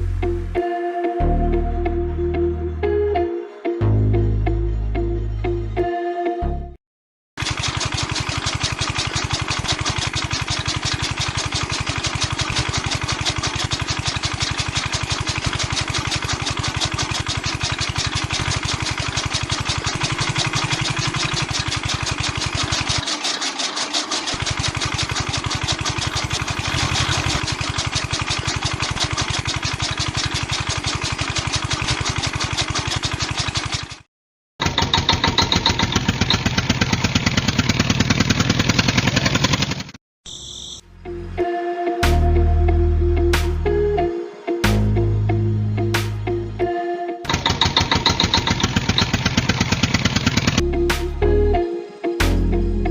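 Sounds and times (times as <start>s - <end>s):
small engine pulsing: 7.4s - 40.8s, 46.7s - 51.5s.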